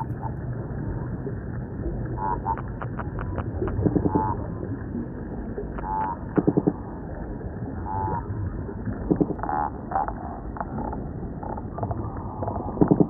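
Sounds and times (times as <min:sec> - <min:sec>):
fish croaking calls: 0:02.1 - 0:04.6, 0:05.6 - 0:11.9.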